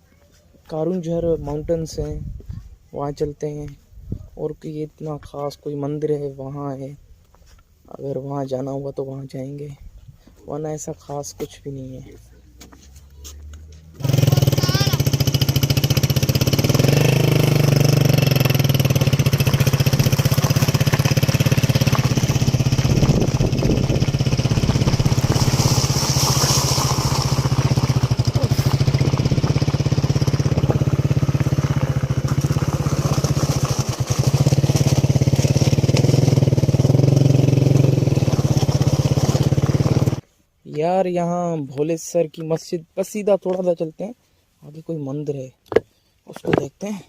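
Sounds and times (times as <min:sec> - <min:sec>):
motorcycle engine running: 0:13.4 - 0:40.2.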